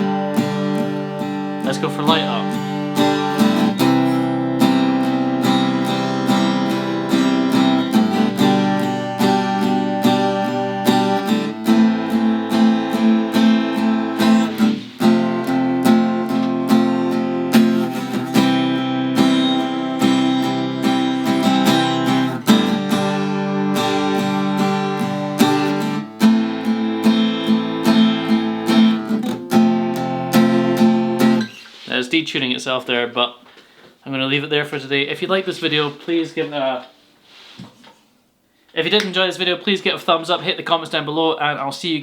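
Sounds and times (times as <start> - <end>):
acoustic guitar strumming chords: 0.0 - 31.9.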